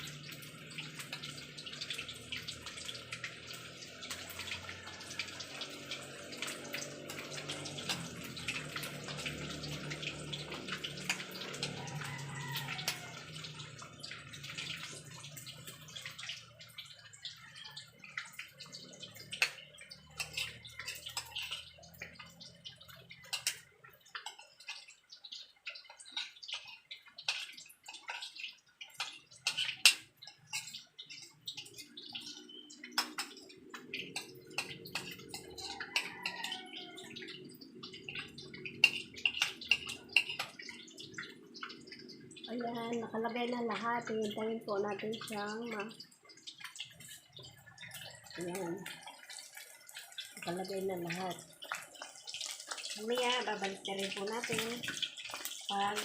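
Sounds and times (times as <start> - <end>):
chicken sizzling in hot oil: 0.0 - 56.0.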